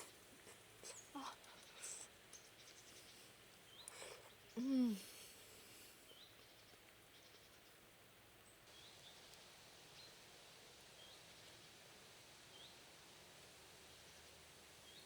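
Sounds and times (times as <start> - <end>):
small bird chirping: 0.0 - 5.0
quiet steady hiss: 0.0 - 15.0.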